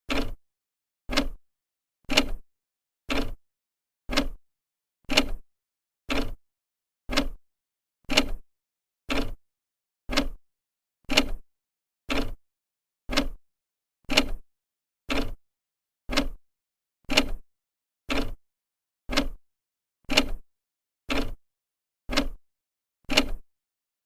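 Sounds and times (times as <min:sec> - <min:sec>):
clock ticking: 0:00.1 - 0:00.4, 0:01.1 - 0:01.4, 0:03.1 - 0:03.4, 0:04.1 - 0:04.4, 0:06.1 - 0:06.4, 0:07.1 - 0:07.4, 0:08.1 - 0:08.4, 0:09.1 - 0:09.4, 0:10.1 - 0:10.4, 0:12.1 - 0:12.4, 0:13.1 - 0:13.4, 0:14.1 - 0:14.4, 0:15.1 - 0:15.4, 0:16.1 - 0:16.4, 0:18.1 - 0:18.4, 0:19.1 - 0:19.4, 0:20.1 - 0:20.4, 0:21.1 - 0:21.4, 0:22.1 - 0:22.4.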